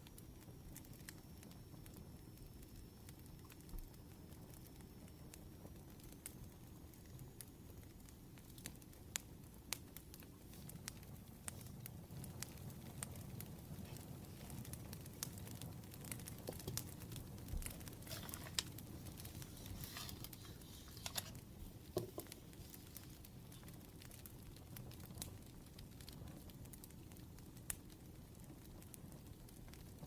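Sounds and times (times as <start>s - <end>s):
wood fire crackling: 0.0s - 30.0s
soft rustles: 10.4s - 11.9s, 17.6s - 23.8s.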